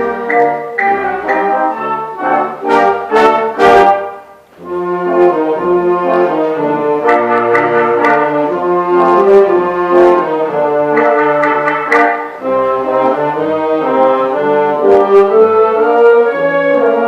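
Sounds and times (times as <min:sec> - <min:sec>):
percussion strikes: 0:00.0 - 0:03.9, 0:07.0 - 0:12.8
brass chords: 0:00.0 - 0:17.0.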